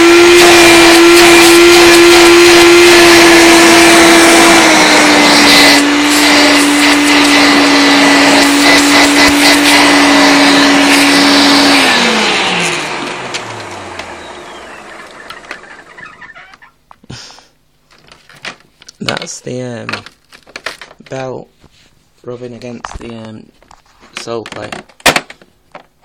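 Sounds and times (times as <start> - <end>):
vacuum cleaner motor whine: 0.0 - 16.3.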